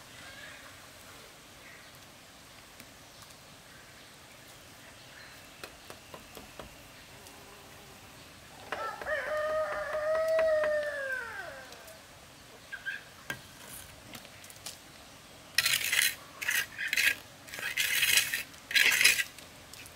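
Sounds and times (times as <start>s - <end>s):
rooster crowing: 8.6s - 12.0s
harsh scraping strokes: 15.6s - 19.9s.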